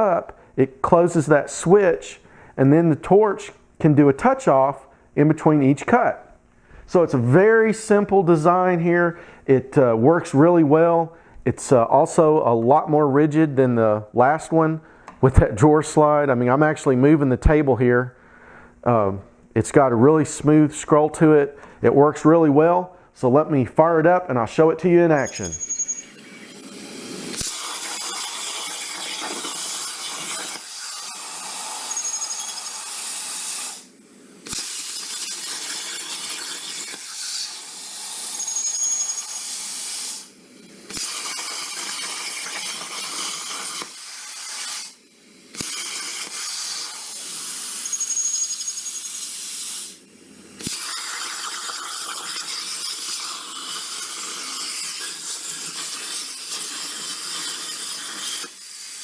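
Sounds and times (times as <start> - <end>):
plasma cutter hissing: 25.3 - 59.0
plasma torch click: 27.3 - 40.3, 40.9 - 50.0, 50.6 - 59.0.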